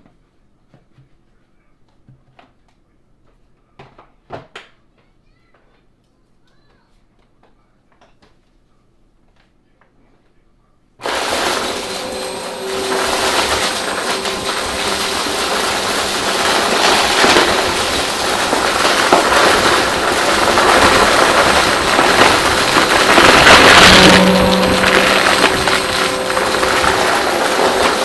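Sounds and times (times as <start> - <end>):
vacuum cleaner running: 11.0 - 28.0.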